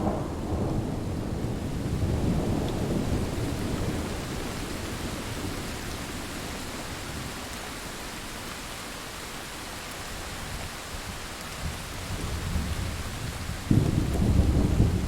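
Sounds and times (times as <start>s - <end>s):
faint rumble of thunder: 0.0s - 7.4s, 11.6s - 15.0s
rain falling: 0.0s - 15.0s.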